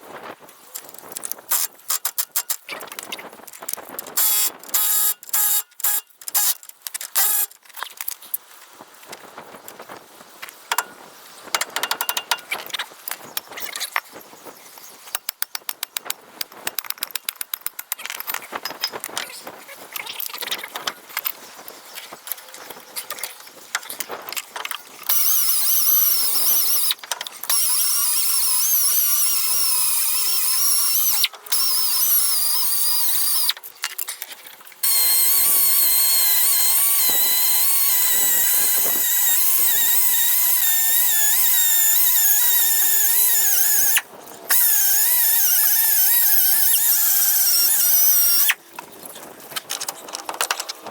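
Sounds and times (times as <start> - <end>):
high-pitched power tool whine: 4.2 - 6.6, 7.2 - 7.5, 25.1 - 33.6, 34.8 - 48.6
hand tool clicks and taps: 11.6 - 12.5.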